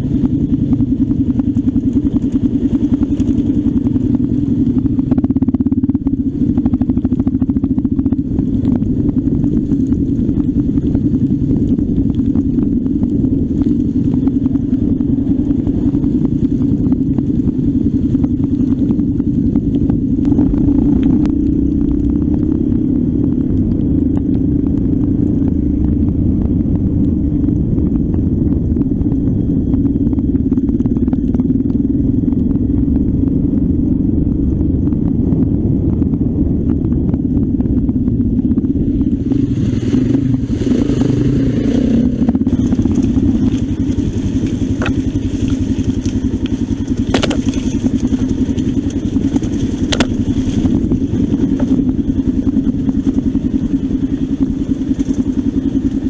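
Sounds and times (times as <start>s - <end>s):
motorcycle engine running: 0.0s - 56.0s
knocks and rattles: 42.5s - 50.7s.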